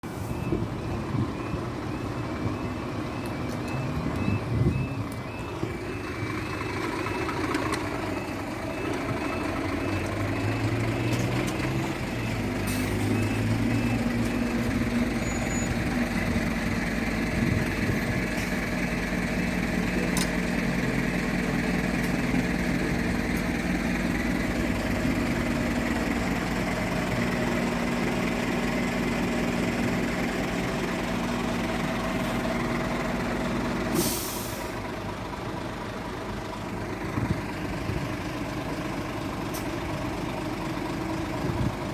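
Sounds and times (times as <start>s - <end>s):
heavy vehicle engine running: 0.0s - 41.9s
air brake hiss: 33.9s - 34.8s.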